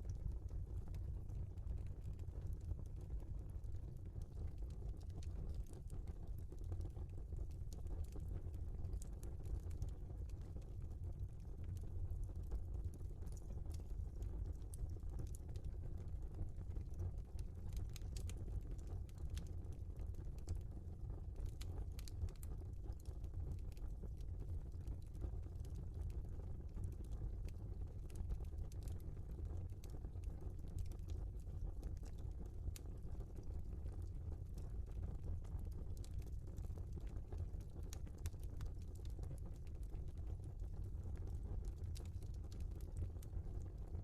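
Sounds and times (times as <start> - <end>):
fire crackles and pops: 0.0 - 44.0
low rumble of flames: 0.0 - 44.0
wood fire crackling and popping: 17.3 - 20.6, 21.4 - 23.4, 26.8 - 29.6, 34.8 - 43.6.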